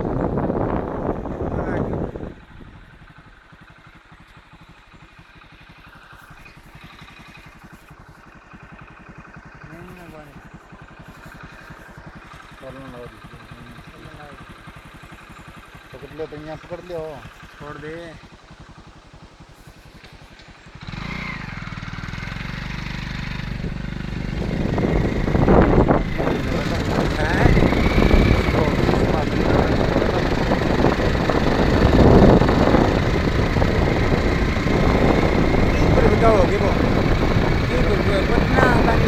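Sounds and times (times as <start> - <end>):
vehicle engine throbbing: 0.0 - 39.0.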